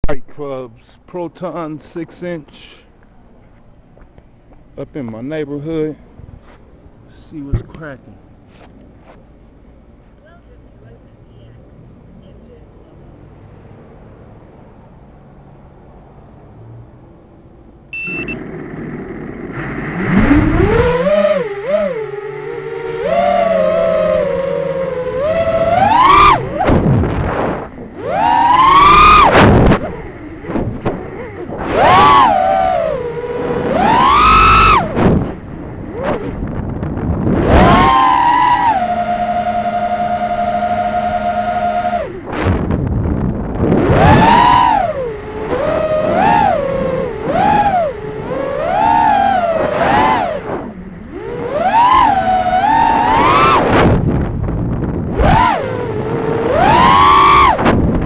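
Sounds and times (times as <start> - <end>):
quadcopter motors whining: 18.0 - 26.7, 27.7 - 36.6, 37.2 - 42.4, 43.6 - 53.8, 55.1 - 57.6.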